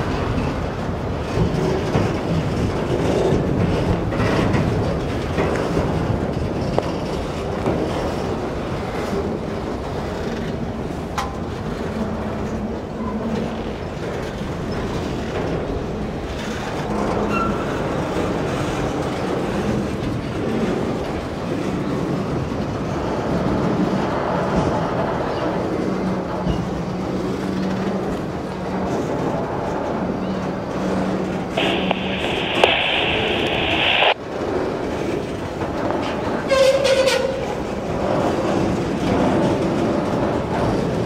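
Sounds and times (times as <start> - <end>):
train wheels rumbling and rattling: 0.0 - 41.0
sharp click: 31.6 - 34.2.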